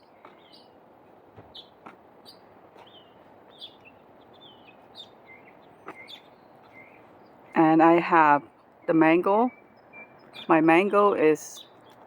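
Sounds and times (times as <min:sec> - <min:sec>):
songbird chirps: 0:00.0 - 0:12.0.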